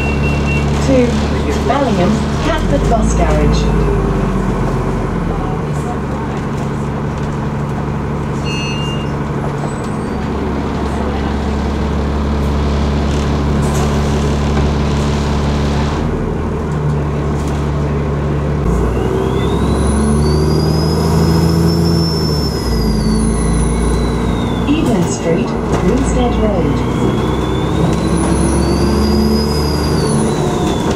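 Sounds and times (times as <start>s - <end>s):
bus engine running: 0.0s - 30.9s
turbocharger whistle: 18.9s - 24.8s, 26.9s - 30.9s.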